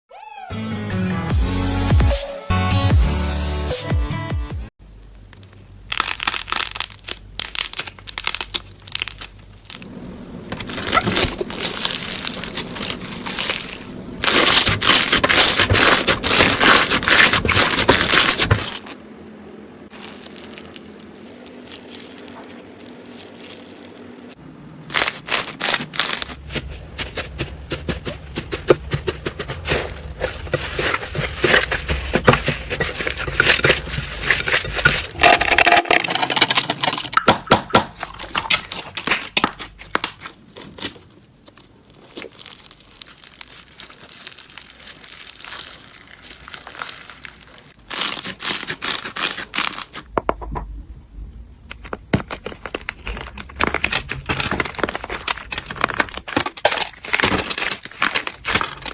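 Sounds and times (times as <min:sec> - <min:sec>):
slime crackling and popping: 0:05.2 - 0:09.9, 0:10.6 - 0:19.0, 0:19.9 - 0:50.1.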